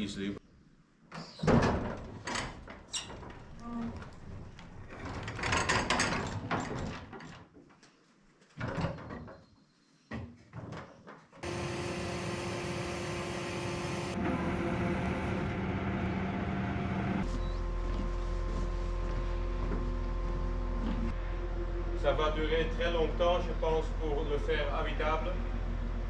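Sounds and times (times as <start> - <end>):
vehicle engine running: 11.4 - 21.3.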